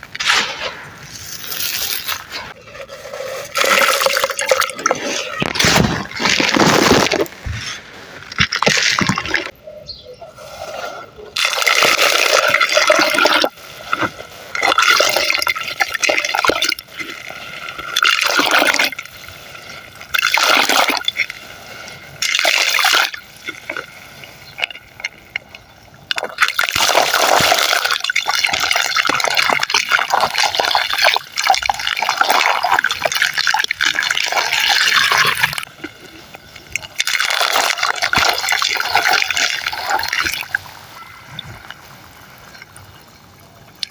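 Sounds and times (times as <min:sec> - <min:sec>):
sand-cement crumbling: 0:00.0 - 0:09.5.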